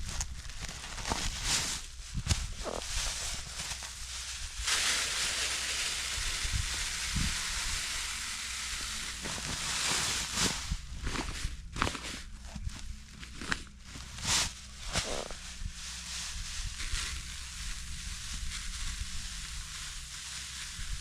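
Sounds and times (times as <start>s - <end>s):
seed scattering hiss: 2.6s - 12.1s, 14.0s - 21.0s.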